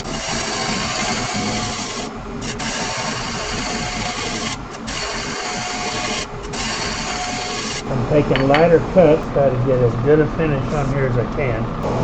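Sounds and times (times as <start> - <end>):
lathe gouge cutting wood: 0.0 - 12.0.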